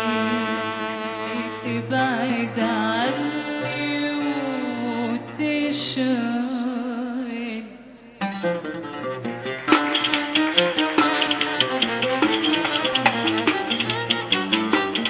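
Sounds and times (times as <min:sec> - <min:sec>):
person singing with vibrato: 0:00.0 - 0:08.2.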